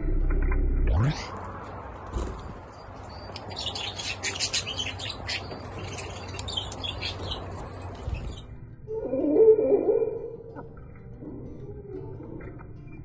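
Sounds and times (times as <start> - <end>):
budgerigars chirping and chattering: 2.9 - 8.4.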